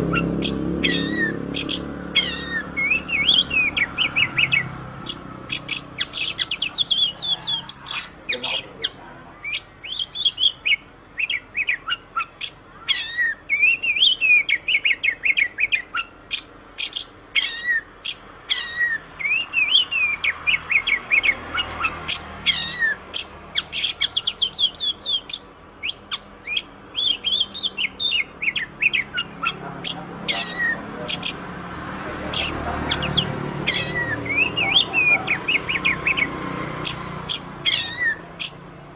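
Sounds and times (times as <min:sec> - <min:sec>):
songbird singing whistled notes: 0:00.0 - 0:31.4, 0:32.3 - 0:38.6.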